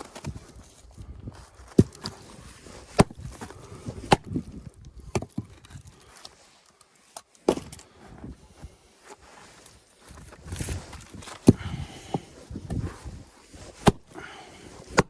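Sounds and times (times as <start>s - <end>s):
axe chopping wood: 2.9s - 3.4s, 4.0s - 4.4s, 5.1s - 5.5s, 7.4s - 7.8s, 11.4s - 12.3s, 13.8s - 14.2s.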